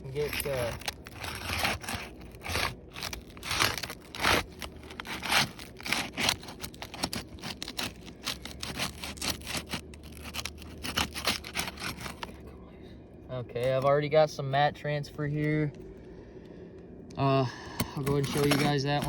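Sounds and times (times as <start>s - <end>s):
pry tool scraping roof shingle: 0.0s - 12.4s, 17.7s - 19.0s.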